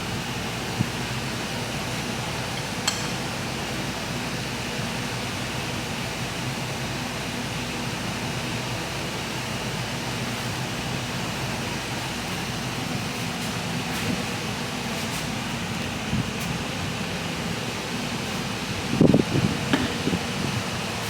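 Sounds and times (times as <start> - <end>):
machinery humming and hissing: 0.0 - 21.0
sharp click: 2.8 - 3.2.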